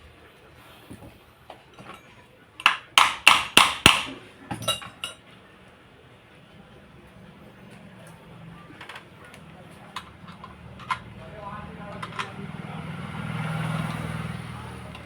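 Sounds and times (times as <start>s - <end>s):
sharp metallic knocks: 2.6s - 4.2s.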